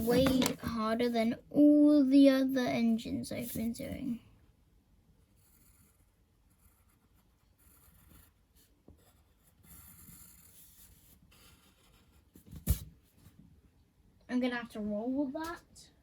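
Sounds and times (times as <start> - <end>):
pencil scratching on paper: 5.2 - 12.8.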